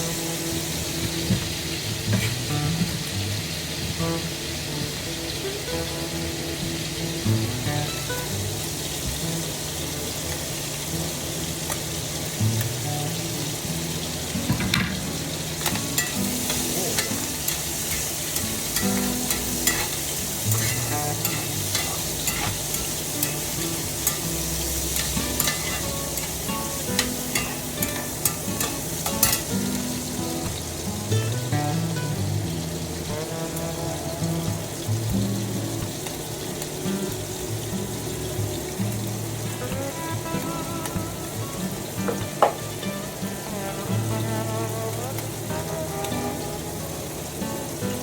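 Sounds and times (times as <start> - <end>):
food sizzling in a wok: 0.0 - 48.0
spatula scraping a wok: 2.0 - 3.0, 15.6 - 29.9.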